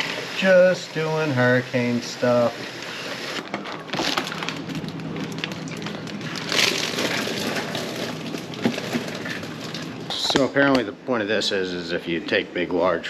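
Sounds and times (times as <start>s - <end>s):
dense crackling and clicking: 2.7s - 10.5s.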